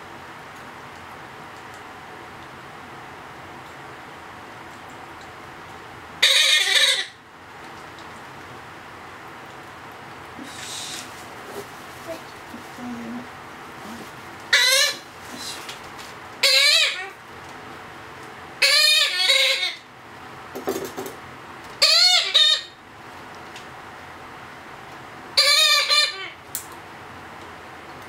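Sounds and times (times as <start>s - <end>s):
parrot chick begging calls: 6.2s - 7.2s, 14.5s - 15.0s, 16.4s - 17.1s, 18.6s - 19.8s, 21.8s - 22.8s, 25.4s - 26.4s.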